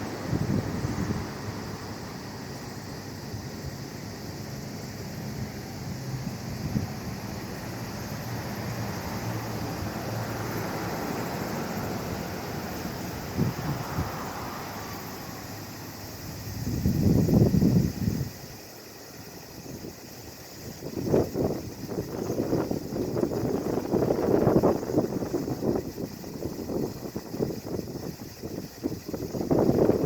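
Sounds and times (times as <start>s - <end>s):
wind buffeting microphone: 0.0s - 2.0s, 11.2s - 14.3s, 16.4s - 18.4s, 20.6s - 30.0s.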